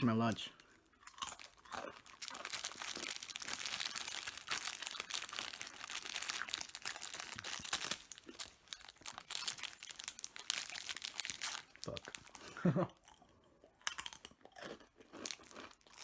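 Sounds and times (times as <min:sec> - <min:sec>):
plastic wrapper crinkling: 0:01.1 - 0:12.6.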